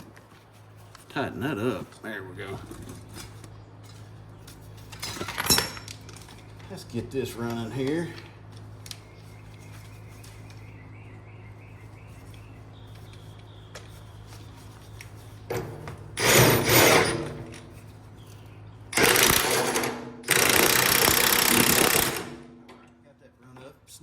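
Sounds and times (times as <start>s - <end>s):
impact wrench bursts: 15.5s - 17.7s, 18.9s - 22.7s.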